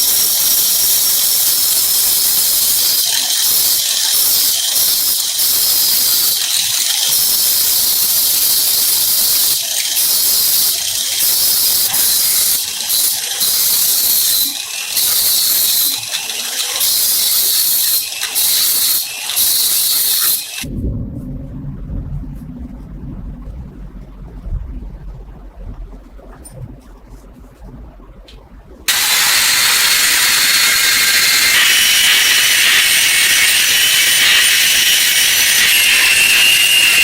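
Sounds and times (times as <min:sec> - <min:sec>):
power grinder grinding metal: 0:00.0 - 0:20.7, 0:28.9 - 0:37.0.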